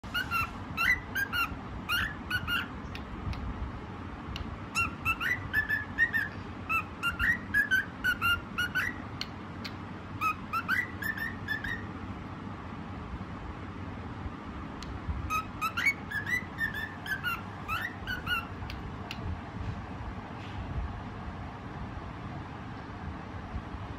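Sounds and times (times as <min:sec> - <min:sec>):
cockatiel whistling: 0:00.1 - 0:03.1, 0:04.7 - 0:09.0, 0:09.6 - 0:11.9, 0:15.3 - 0:18.8.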